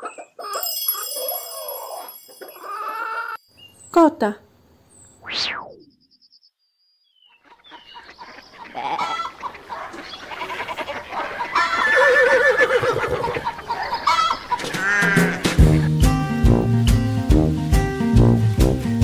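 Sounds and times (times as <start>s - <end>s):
chickens clucking: 0.0s - 0.6s, 1.2s - 3.4s, 7.4s - 16.0s
livestock calls: 7.3s - 15.6s.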